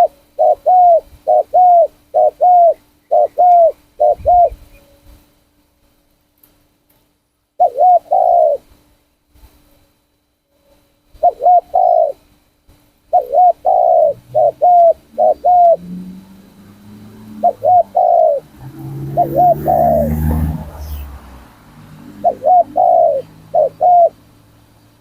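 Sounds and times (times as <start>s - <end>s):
dove cooing: 0.0s - 4.8s, 7.6s - 8.7s, 11.2s - 12.2s, 13.1s - 21.2s, 21.9s - 24.4s.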